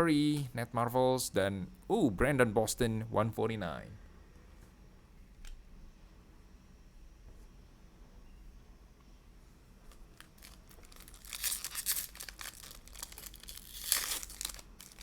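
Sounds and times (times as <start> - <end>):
plastic wrapper tearing and crinkling: 10.1 - 15.0.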